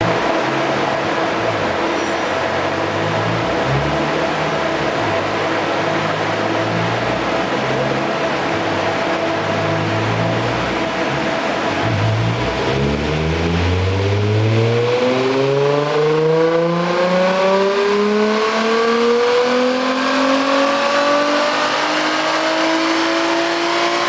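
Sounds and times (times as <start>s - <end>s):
car engine revving up: 0.0s - 24.0s.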